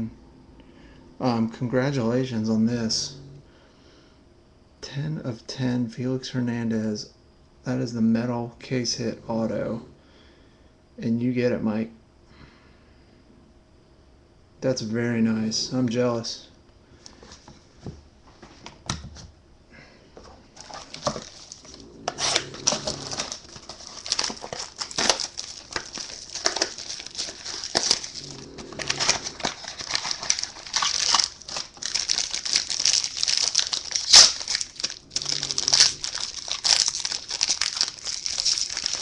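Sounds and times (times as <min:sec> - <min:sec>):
wrapper tearing and crinkling: 0:20.6 - 0:39.0.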